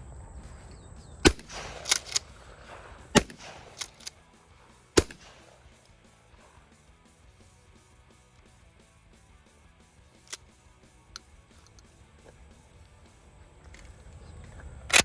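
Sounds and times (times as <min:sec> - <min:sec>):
shotgun blasts: 0:01.2 - 0:06.8
shotgun pump racking clacks: 0:01.3 - 0:04.2, 0:11.2 - 0:12.4.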